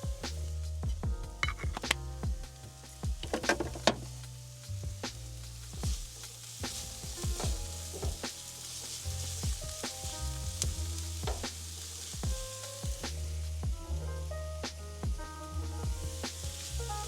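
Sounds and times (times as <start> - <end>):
soft background music: 0.0 - 17.0
onions sizzling in a frying pan: 2.6 - 14.0, 15.5 - 17.0.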